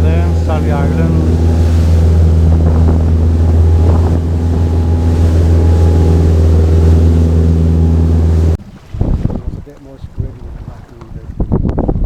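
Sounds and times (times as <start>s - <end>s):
boat engine droning: 0.0s - 8.8s
wind on microphone: 0.0s - 12.0s.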